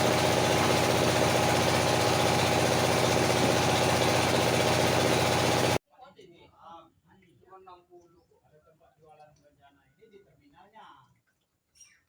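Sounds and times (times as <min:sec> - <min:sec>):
sawmill engine running: 0:00.0 - 0:05.8.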